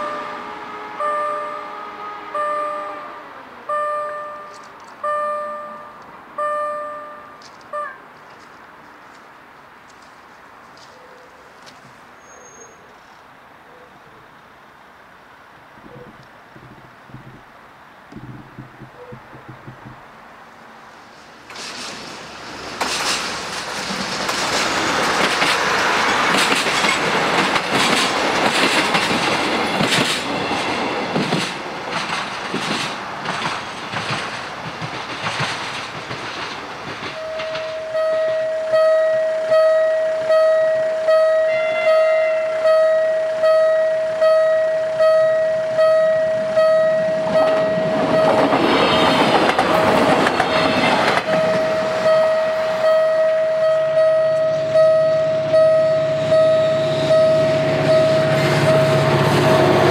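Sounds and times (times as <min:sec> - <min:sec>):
level crossing warning bell: 0:00.0 - 0:03.1, 0:03.7 - 0:08.0, 0:37.1 - 0:59.2
passing train noise: 0:00.0 - 0:13.8, 0:14.4 - 0:59.9
train wheels clattering: 0:18.1 - 0:20.3, 0:21.5 - 0:37.8, 0:47.5 - 0:52.1.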